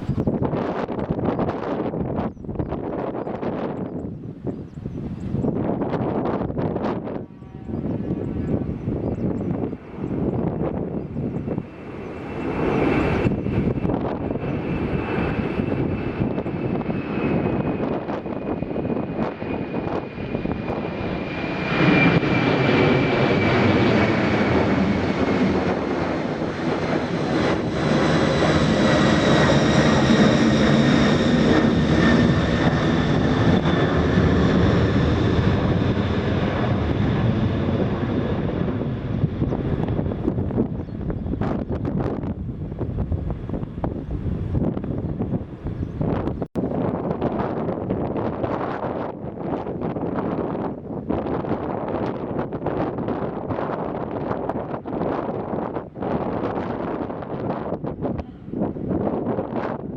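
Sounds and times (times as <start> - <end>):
jet engines rumbling and whining: 0.0 - 59.9.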